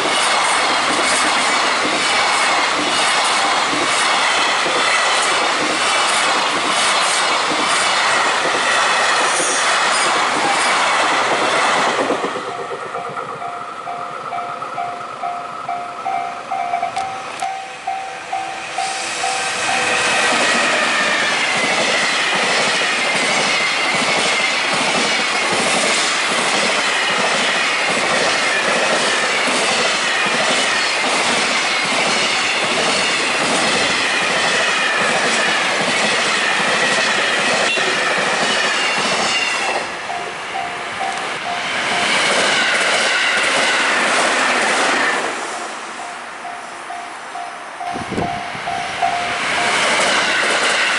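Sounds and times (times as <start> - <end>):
train wheels clattering over rails: 0.0 - 15.9, 18.8 - 40.2, 41.0 - 45.8, 48.0 - 50.9
crossing warning bell ringing: 12.4 - 21.7, 38.5 - 43.5, 45.9 - 50.9.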